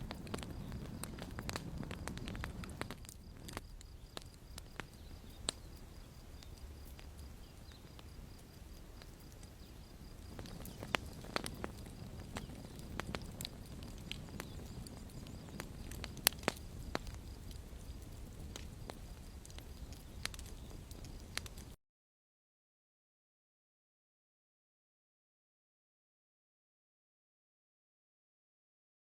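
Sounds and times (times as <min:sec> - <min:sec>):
campfire crackling and popping: 0:00.0 - 0:21.8.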